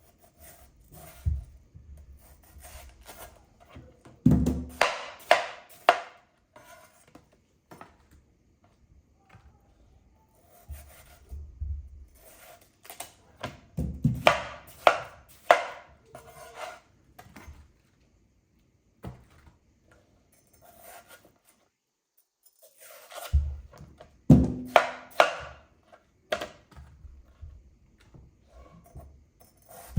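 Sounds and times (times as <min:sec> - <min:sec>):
knife chopping on cutting board: 0:04.3 - 0:06.1, 0:13.8 - 0:15.8, 0:24.3 - 0:25.6.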